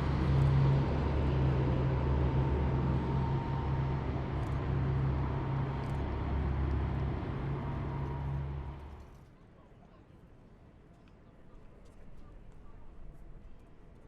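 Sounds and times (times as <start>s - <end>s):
road noise: 0.0s - 9.1s
heavy vehicle engines droning: 0.0s - 9.2s.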